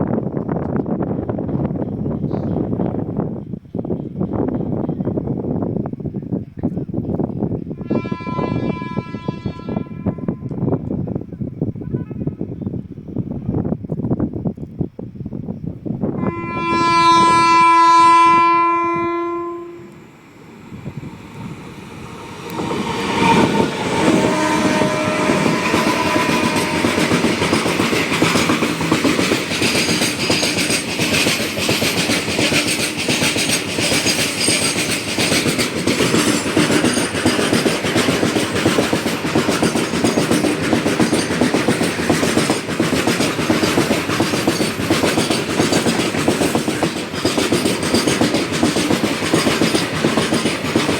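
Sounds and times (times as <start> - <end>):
electric locomotive horn blast: 7.8 - 10.6, 16.2 - 21.0, 22.4 - 27.6
train wheels clacking over rail joints: 21.4 - 50.9.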